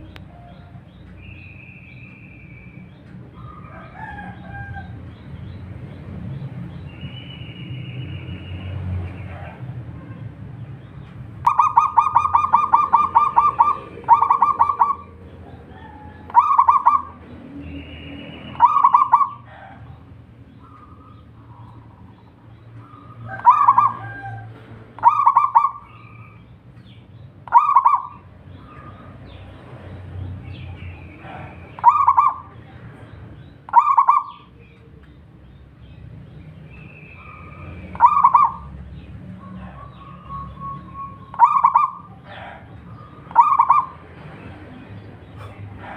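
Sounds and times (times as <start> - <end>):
dove cooing: 11.5 - 17.3, 18.4 - 22.2, 22.8 - 26.2, 27.5 - 29.1, 31.1 - 32.7, 33.7 - 34.9, 37.2 - 38.7, 39.4 - 44.0.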